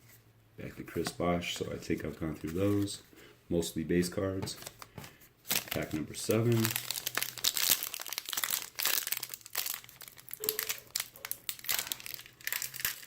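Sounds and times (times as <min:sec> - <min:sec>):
plastic wrapper crinkling and tearing: 0:05.5 - 0:13.0.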